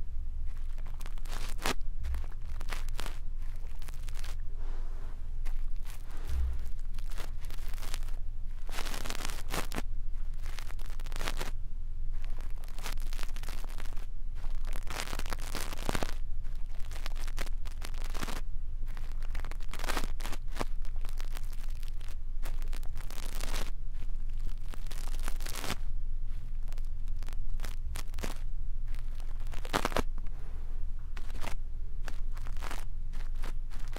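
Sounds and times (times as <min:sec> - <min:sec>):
brush scratching on microphone: 0:00.5 - 0:11.5, 0:12.2 - 0:33.9.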